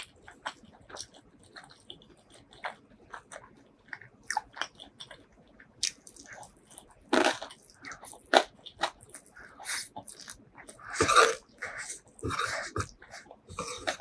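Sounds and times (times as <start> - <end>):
chewing clicks: 0.0 - 9.4
crunching fried chicken: 0.0 - 14.0.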